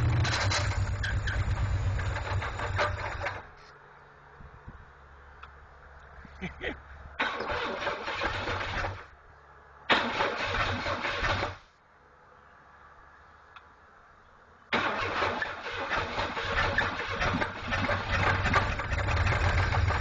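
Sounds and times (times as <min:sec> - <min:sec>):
engine starter cranking: 0:00.0 - 0:03.4, 0:07.2 - 0:09.1, 0:09.9 - 0:11.6, 0:14.7 - 0:20.0.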